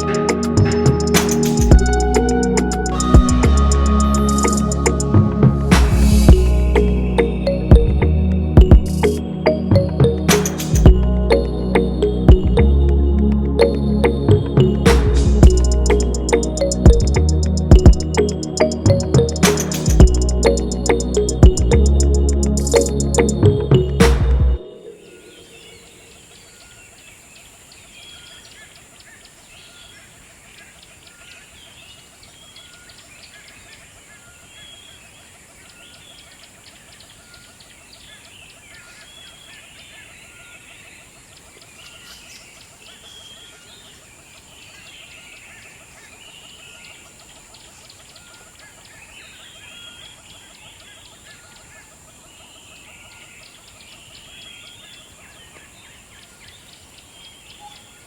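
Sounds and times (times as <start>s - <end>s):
birds calling and chattering: 0.0s - 12.6s, 13.6s - 58.0s
high-pitched drone: 0.0s - 26.3s.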